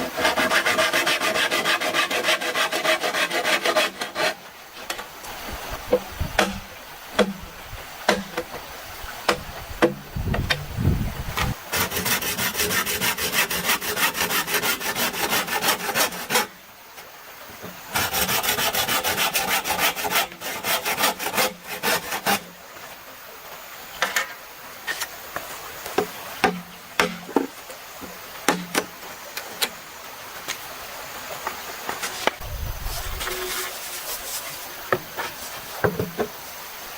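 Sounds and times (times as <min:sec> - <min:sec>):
hand saw cutting bamboo: 0:00.0 - 0:04.5, 0:06.4 - 0:06.6, 0:11.4 - 0:16.5, 0:17.9 - 0:22.5, 0:33.0 - 0:36.2.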